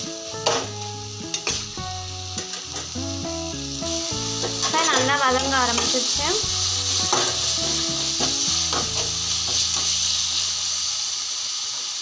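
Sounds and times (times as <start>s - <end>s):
food sizzling in hot oil: 0.0s - 12.0s
spatula scraping a pan: 4.3s - 10.1s.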